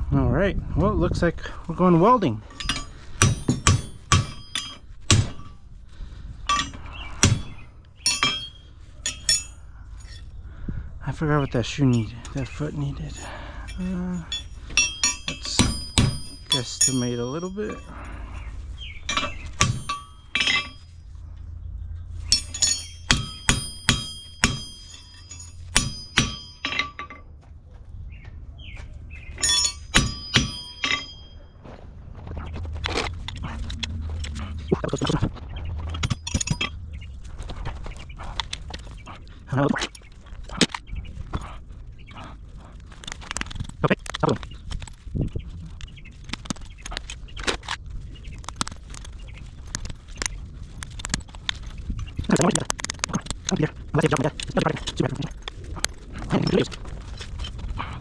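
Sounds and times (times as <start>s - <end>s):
hammer striking steel: 2.5s - 5.6s, 6.5s - 9.6s, 13.7s - 17.9s, 19.1s - 20.9s, 22.3s - 27.3s, 29.4s - 31.4s.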